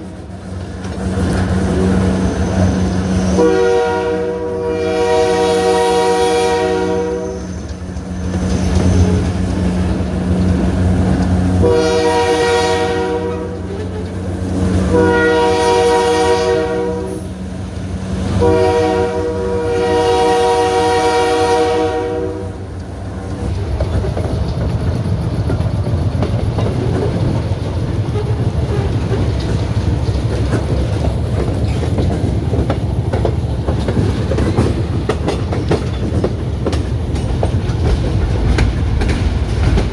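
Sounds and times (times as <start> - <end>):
wheels clicking over rail joints: 0.0 - 3.6, 7.4 - 15.5, 22.6 - 39.9
moving train rumble: 0.0 - 39.9
train horn blasts: 2.5 - 7.8, 11.5 - 14.2, 14.8 - 17.4, 18.2 - 22.8.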